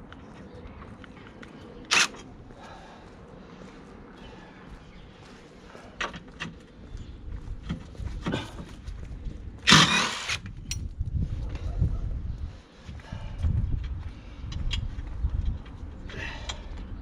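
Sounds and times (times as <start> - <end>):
loud harsh rasp: 9.7 - 10.4.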